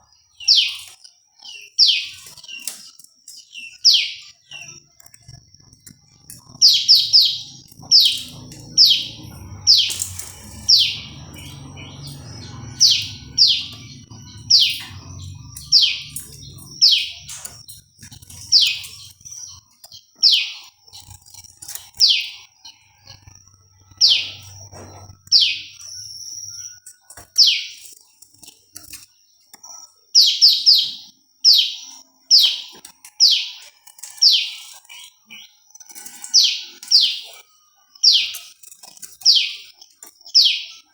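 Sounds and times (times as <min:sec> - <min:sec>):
bird chirping sharply: 0:06.4 - 0:19.6, 0:23.0 - 0:26.8, 0:30.2 - 0:33.6.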